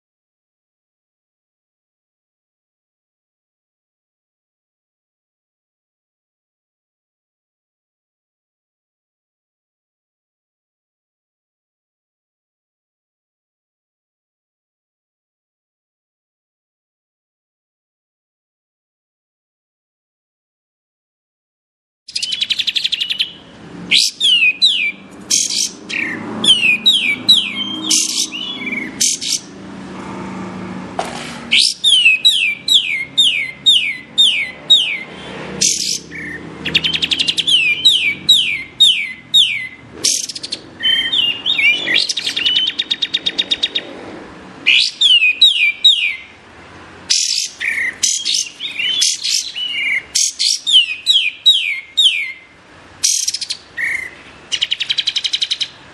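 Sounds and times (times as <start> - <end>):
bird singing whistled notes: 22.1 - 29.5, 31.5 - 43.9, 44.7 - 46.3, 47.1 - 55.8.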